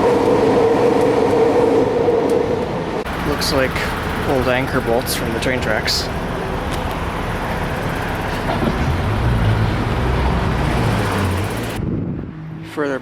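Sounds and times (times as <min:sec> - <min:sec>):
urban traffic noise: 0:00.0 - 0:13.0
vehicle passing close by: 0:03.1 - 0:12.8.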